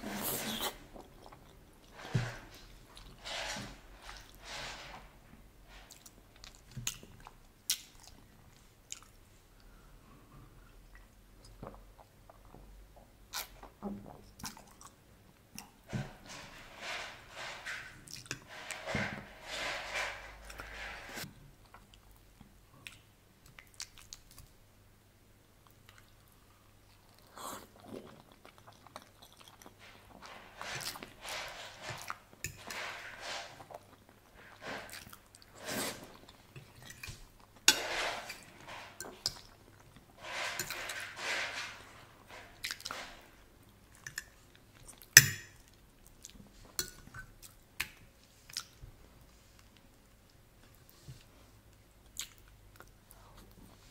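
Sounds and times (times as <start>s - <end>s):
wet chewing sounds: 25.7s - 30.2s, 52.0s - 53.6s.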